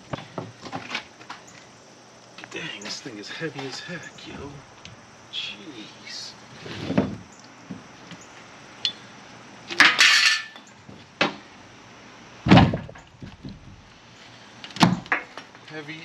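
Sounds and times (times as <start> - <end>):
scraping rustle: 6.4 - 7.3
heavy thud: 12.5 - 13.9.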